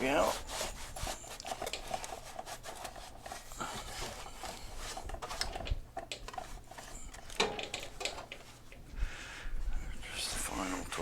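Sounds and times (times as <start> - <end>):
cloth rubbing on plastic: 0.0 - 5.6.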